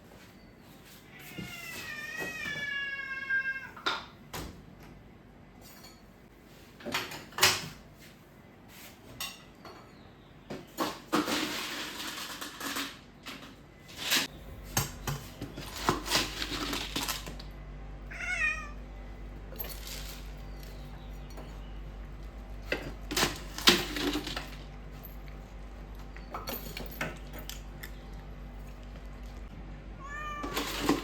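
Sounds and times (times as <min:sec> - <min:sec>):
cat meowing: 0:01.1 - 0:03.8, 0:18.1 - 0:18.8, 0:30.0 - 0:30.8.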